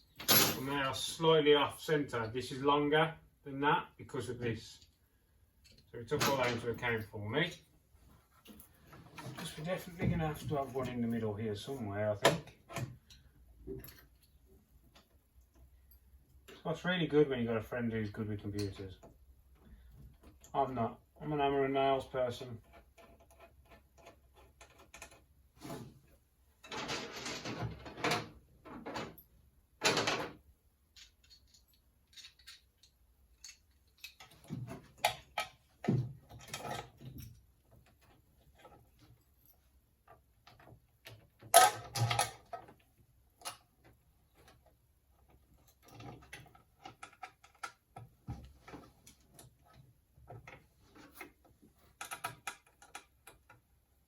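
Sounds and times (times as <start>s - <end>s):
plastic clamps clicking and knocking: 51.2s - 53.7s.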